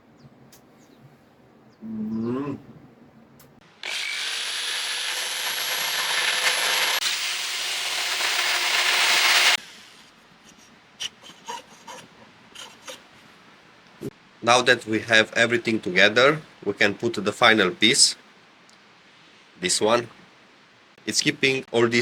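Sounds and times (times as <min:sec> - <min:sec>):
power tool motor whine: 0:03.8 - 0:09.6.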